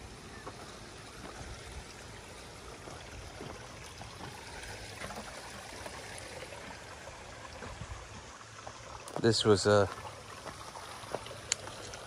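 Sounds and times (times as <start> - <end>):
brook babbling: 0.0 - 12.0.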